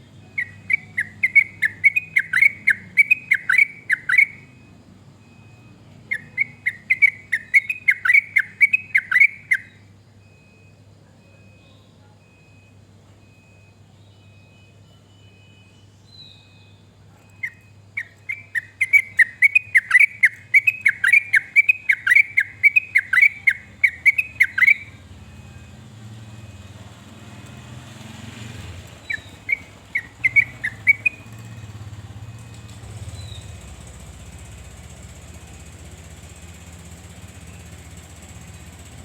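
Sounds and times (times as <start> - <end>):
bulbul singing bubbly chirps: 0.2 - 10.4, 15.4 - 25.6, 28.8 - 33.7.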